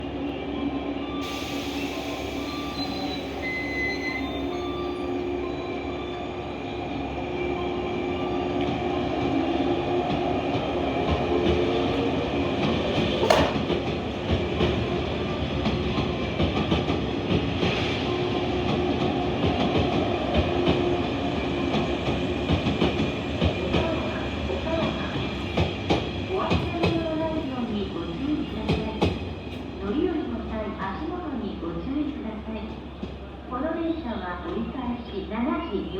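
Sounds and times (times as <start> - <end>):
train motor and gear hum: 1.3 - 35.9
train wheels clattering: 12.6 - 14.8.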